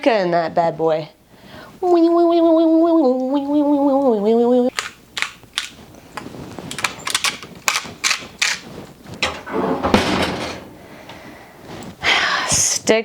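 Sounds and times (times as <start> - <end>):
rustling scrape: 5.7 - 12.0
kitchen utensils clicking: 6.7 - 11.2.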